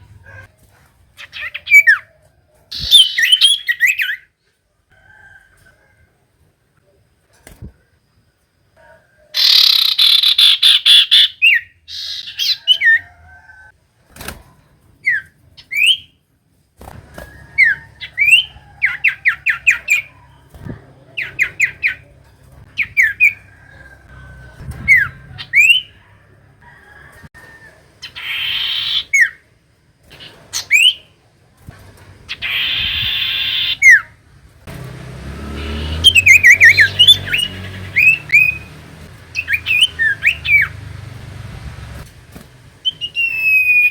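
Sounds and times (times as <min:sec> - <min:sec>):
bird harsh rasping chatter: 0:09.4 - 0:13.0, 0:17.6 - 0:26.1, 0:28.0 - 0:29.4, 0:32.3 - 0:34.1, 0:35.4 - 0:41.2
bird sweeping whistled notes: 0:42.8 - 0:43.9.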